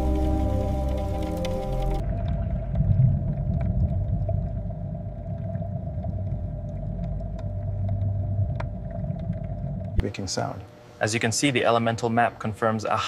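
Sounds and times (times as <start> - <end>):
music with pad tones: 0.0 - 2.1
low rumble: 0.0 - 10.0
faint hum: 0.0 - 13.0.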